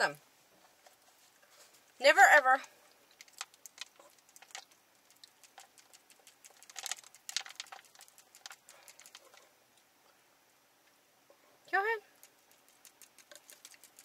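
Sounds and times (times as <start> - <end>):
chewing noodles mouth clicks: 3.1 - 9.4, 12.2 - 14.0.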